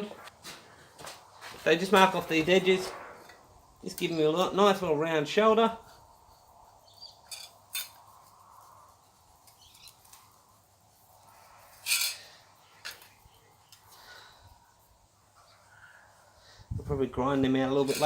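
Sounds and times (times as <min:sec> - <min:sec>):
metal sheet scrape: 0:02.1 - 0:03.6.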